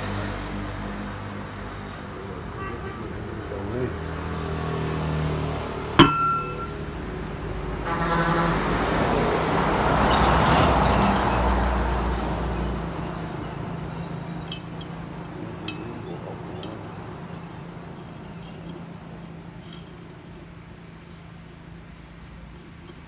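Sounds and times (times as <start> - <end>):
metallic clink: 5.6 - 6.9, 11.1 - 11.7, 14.4 - 16.0, 16.6 - 20.1.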